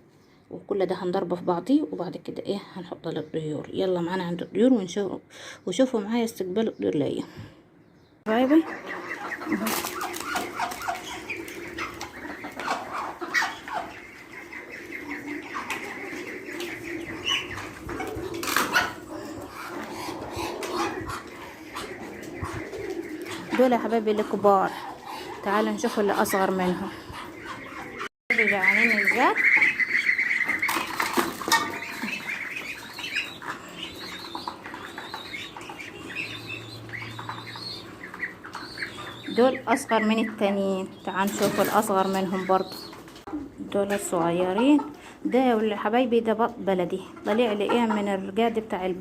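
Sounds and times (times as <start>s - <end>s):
poultry calling: 8.3s - 43.5s
chicks peeping: 8.3s - 45.8s, 46.9s - 49.0s.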